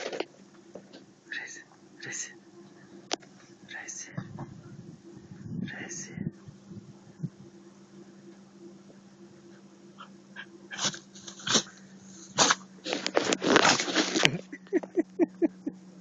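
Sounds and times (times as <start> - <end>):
dog sneezing: 10.7 - 12.6.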